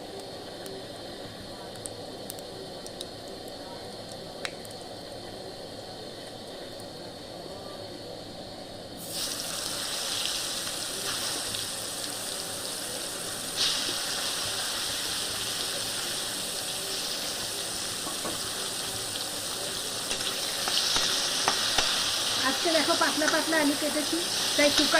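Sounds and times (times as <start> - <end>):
food sizzling in hot oil: 9.0 - 24.9.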